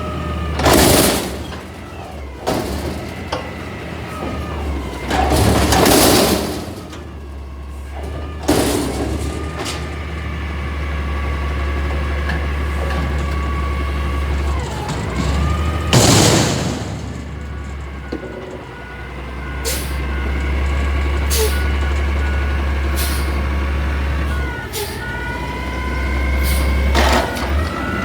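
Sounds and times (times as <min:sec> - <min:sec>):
garbage truck engine running: 0:00.0 - 0:28.0
sharp bang: 0:15.9 - 0:18.4.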